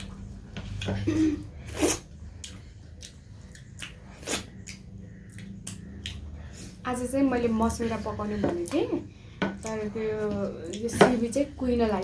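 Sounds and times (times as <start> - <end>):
low steady hum: 0.0 - 12.0
person chewing: 1.6 - 6.8.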